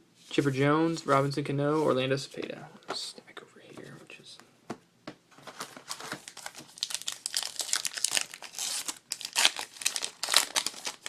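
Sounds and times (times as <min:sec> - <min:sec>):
wrapper tearing and crinkling: 0:05.8 - 0:11.0.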